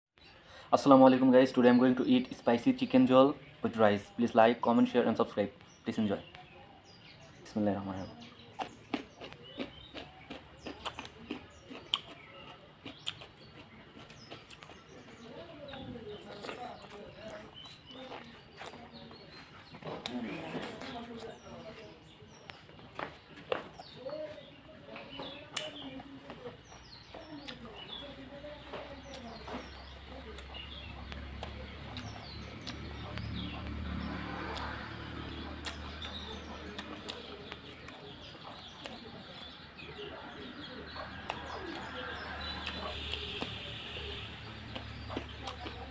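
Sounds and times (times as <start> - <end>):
small birds chirping: 0.2 - 45.9
mouth smacks while eating: 8.6 - 14.8, 35.6 - 39.4.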